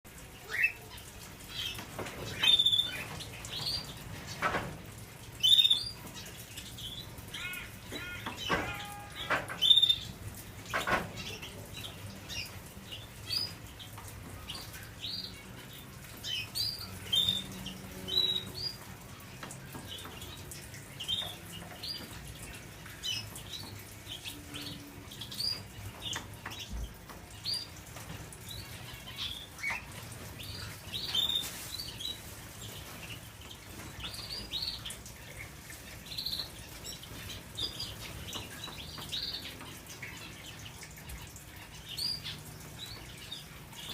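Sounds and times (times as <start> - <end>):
canaries chirping: 0.4 - 43.9
rustles: 29.7 - 34.9.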